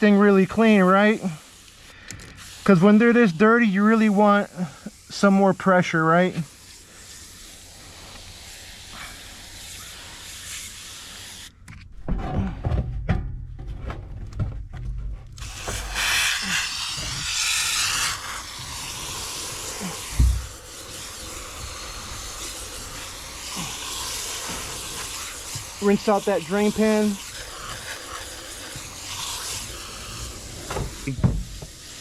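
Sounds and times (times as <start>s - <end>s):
garden sprayer hissing: 0.0s - 11.6s, 15.4s - 32.0s
low thumps and knocks: 11.9s - 15.4s.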